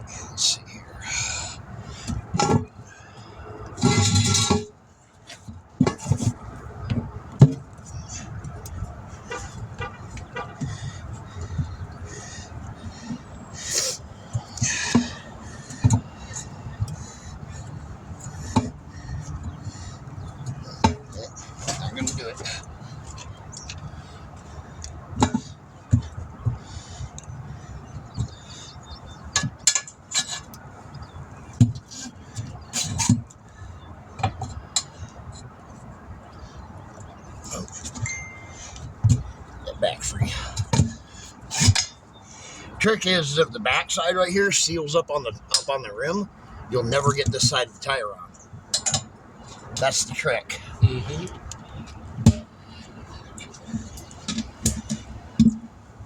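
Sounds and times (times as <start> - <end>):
low outdoor rumble: 0.0 - 56.0
metal clanks from tire changer: 3.8 - 4.7, 48.7 - 49.1
metallic clinks of tire tools: 37.5 - 39.5.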